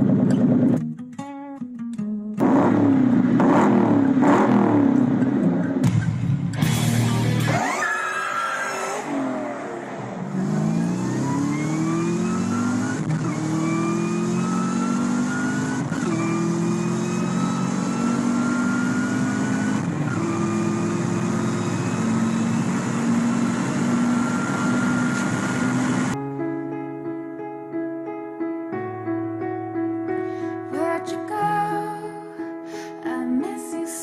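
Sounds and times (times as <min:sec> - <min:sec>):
car engine accelerating hard: 0:00.0 - 0:00.8, 0:02.4 - 0:05.9, 0:06.5 - 0:26.2
supercharger whine: 0:00.0 - 0:00.8, 0:02.4 - 0:26.2.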